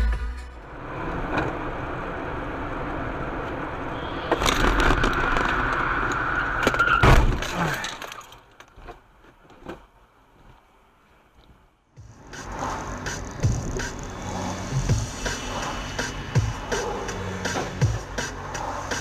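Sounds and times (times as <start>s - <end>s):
road noise: 0.0s - 19.0s
car crash impact: 3.5s - 8.5s
tyre squeal: 3.8s - 8.3s.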